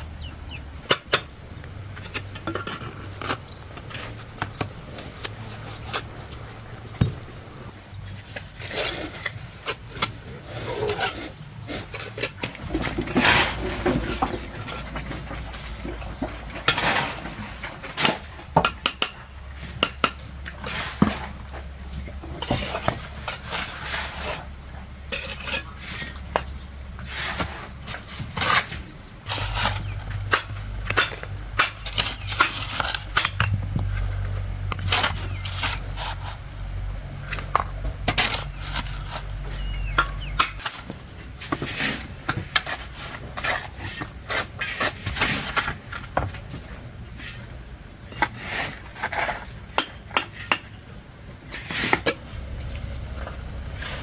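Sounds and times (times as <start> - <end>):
low steady hum: 0.0 - 8.5, 28.8 - 40.8, 52.1 - 54.0.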